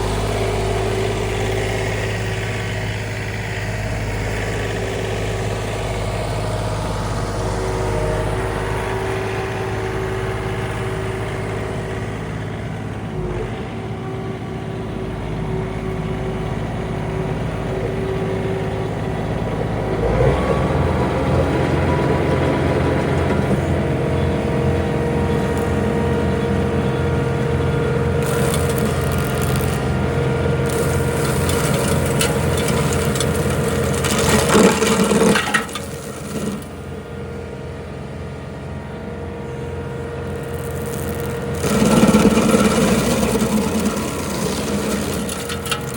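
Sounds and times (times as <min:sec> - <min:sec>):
tractor diesel engine running: 0:00.0 - 0:45.9
stump grinder cutting wood: 0:20.0 - 0:37.0, 0:40.2 - 0:45.9.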